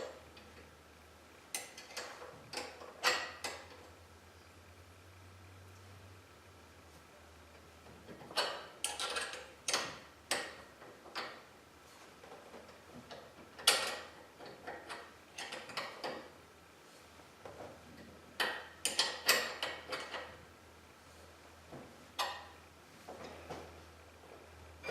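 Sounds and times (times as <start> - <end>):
metallic clicks and clanks: 1.5 - 3.9, 8.0 - 11.4, 12.3 - 16.4, 17.5 - 20.4.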